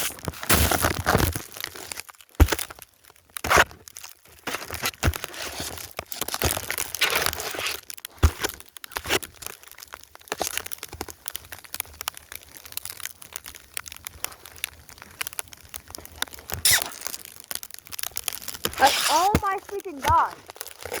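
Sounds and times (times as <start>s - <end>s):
snow crunching: 18.4s - 21.0s.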